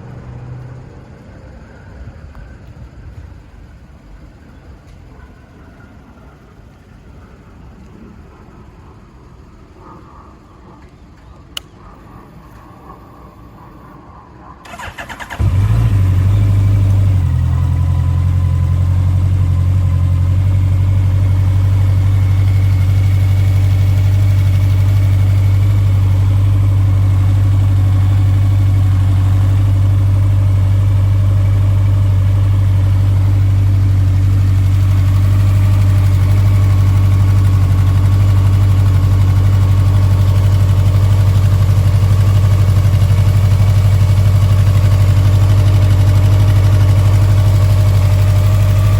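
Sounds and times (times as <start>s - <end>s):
motorcycle engine starter cranking: 14.6s - 15.9s
motorcycle engine idling: 14.7s - 48.9s.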